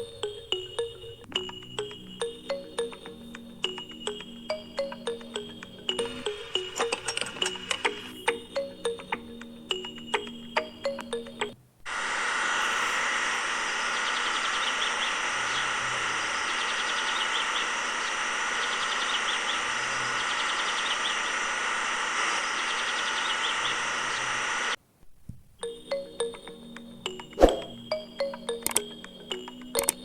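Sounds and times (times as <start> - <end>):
small motor whining: 11.9 - 24.8
bird chirps: 13.9 - 21.3, 22.6 - 24.4.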